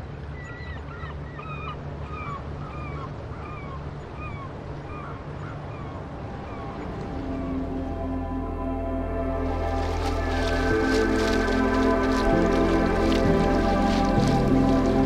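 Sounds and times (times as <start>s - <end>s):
steady low rumble: 5.5s - 15.0s.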